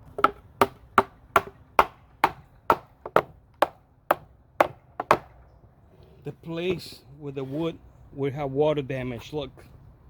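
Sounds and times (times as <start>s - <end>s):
sharp knocks on wooden box: 0.1s - 5.4s.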